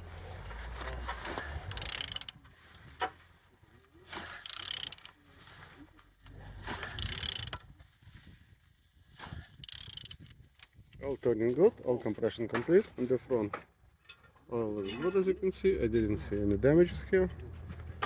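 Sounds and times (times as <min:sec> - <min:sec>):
engine turned over by wrench: 0:00.0 - 0:03.2, 0:04.1 - 0:05.2, 0:06.4 - 0:07.6, 0:09.5 - 0:10.4.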